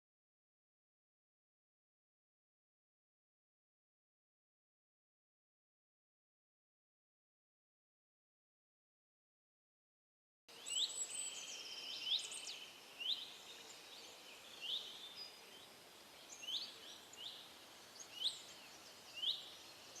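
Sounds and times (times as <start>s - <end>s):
faint background hiss: 10.5s - 20.0s.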